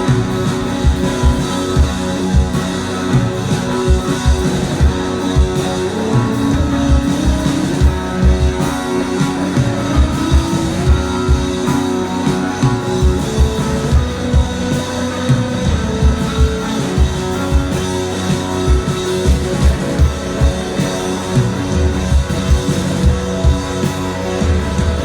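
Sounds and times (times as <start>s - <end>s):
bass guitar: 0.0s - 25.0s
drum beat: 0.0s - 25.0s
electric guitar notes: 0.0s - 25.0s.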